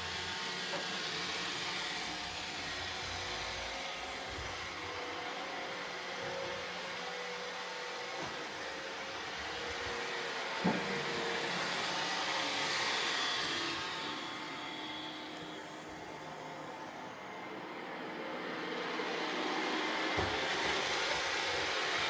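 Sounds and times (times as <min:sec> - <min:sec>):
robot vacuum whirring hum: 0:00.0 - 0:22.0.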